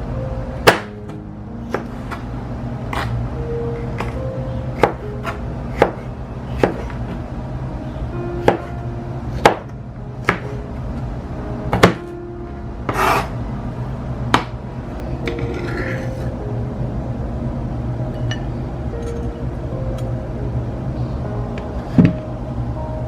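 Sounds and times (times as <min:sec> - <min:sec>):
soft background music: 0:00.0 - 0:23.0
knife chopping on cutting board: 0:00.6 - 0:00.9, 0:02.9 - 0:03.1, 0:04.0 - 0:04.2, 0:04.8 - 0:07.0, 0:09.4 - 0:10.6, 0:11.8 - 0:12.0, 0:12.9 - 0:13.3
knife scraping board: 0:12.9 - 0:13.4, 0:15.4 - 0:16.3.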